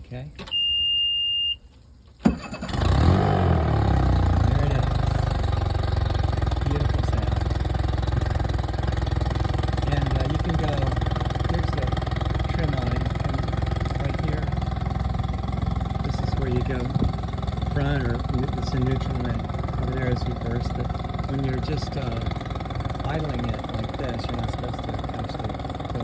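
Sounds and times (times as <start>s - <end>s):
short beep: 0.4s - 1.8s
outboard engine starting and idling: 2.1s - 26.0s.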